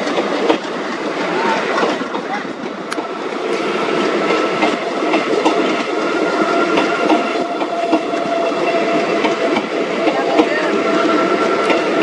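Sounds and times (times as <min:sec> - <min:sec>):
diesel locomotives passing: 0:00.0 - 0:12.0
wheels clicking over rail joints: 0:00.0 - 0:12.0
steady whine: 0:03.0 - 0:10.0.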